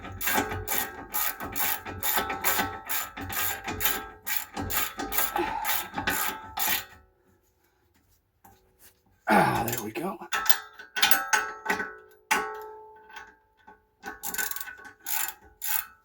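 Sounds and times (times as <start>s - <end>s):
ratchet wrench clicking: 0.2s - 6.8s, 14.2s - 15.9s.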